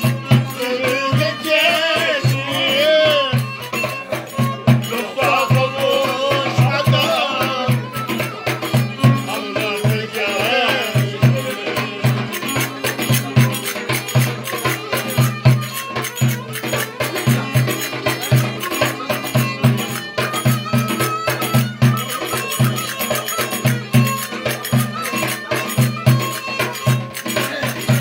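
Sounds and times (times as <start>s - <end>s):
sustained high melody: 0.0s - 28.0s.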